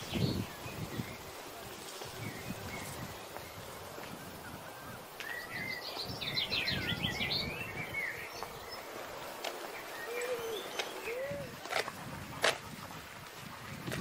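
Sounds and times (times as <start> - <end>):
songbird whistles and trills: 2.2 - 8.8, 9.8 - 11.5.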